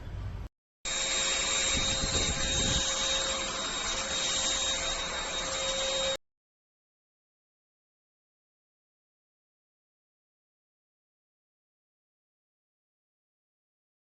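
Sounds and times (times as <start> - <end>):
vacuum cleaner running: 0.9 - 6.2.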